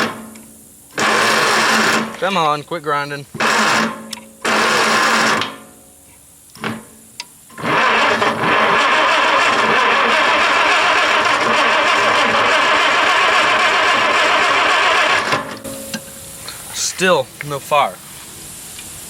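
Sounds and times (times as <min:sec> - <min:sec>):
starter cranking engine: 0:00.9 - 0:02.2, 0:03.4 - 0:05.4, 0:07.5 - 0:15.6.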